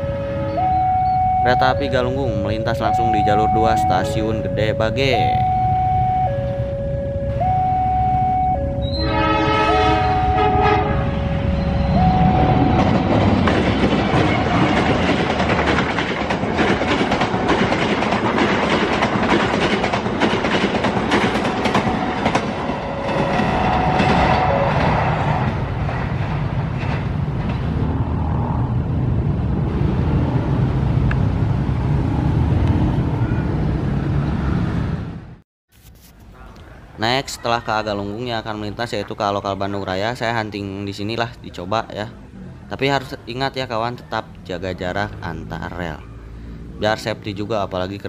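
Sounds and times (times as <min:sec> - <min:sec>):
train coaches rushing past: 0:00.0 - 0:06.7, 0:08.5 - 0:35.2
train horn two-note blasts: 0:07.4 - 0:12.9, 0:22.8 - 0:25.5
wheels clattering over rail joints: 0:12.2 - 0:28.0.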